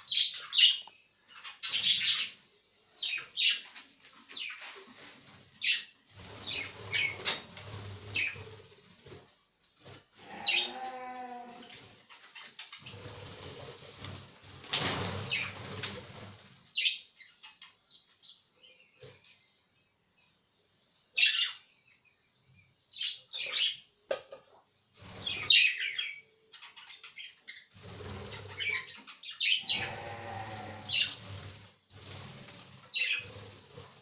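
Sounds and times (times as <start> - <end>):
budgerigars chirping: 0.0 - 2.4, 25.2 - 30.3, 32.9 - 33.4
wings flapping: 6.2 - 10.0, 12.8 - 16.7, 27.8 - 28.8, 29.8 - 34.0.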